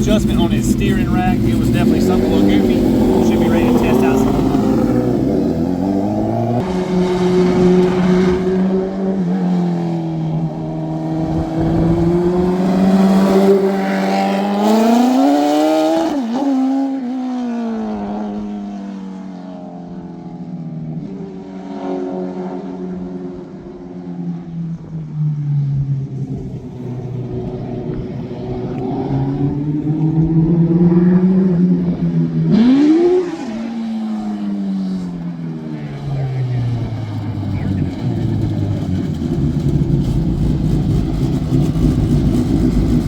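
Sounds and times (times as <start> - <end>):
mini truck engine revving: 0.0 - 8.7, 35.8 - 43.0.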